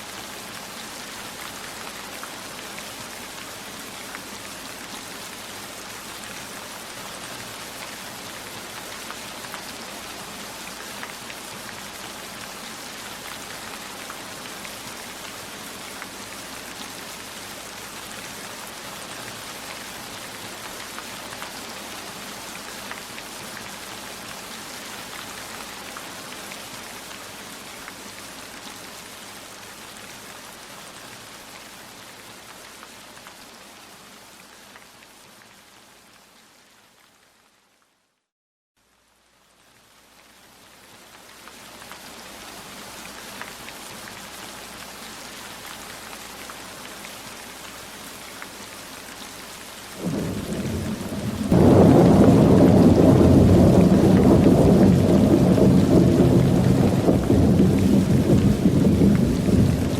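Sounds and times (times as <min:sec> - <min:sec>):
heavy rain falling: 0:41.8 - 0:59.9.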